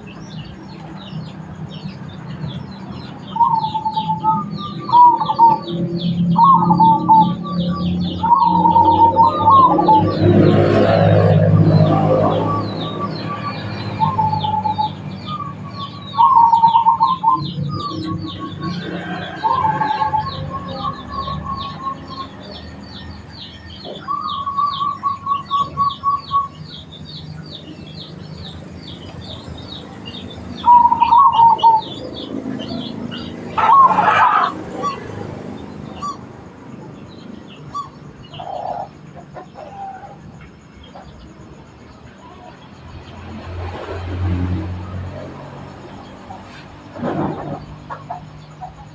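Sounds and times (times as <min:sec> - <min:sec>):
doves cooing: 0:03.2 - 0:26.6, 0:28.3 - 0:36.3, 0:37.6 - 0:40.3.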